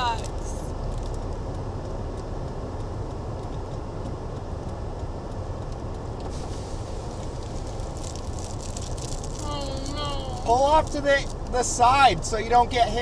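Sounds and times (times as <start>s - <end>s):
car engine and tyre rumble: 0.0s - 13.0s
road hiss: 5.7s - 13.0s.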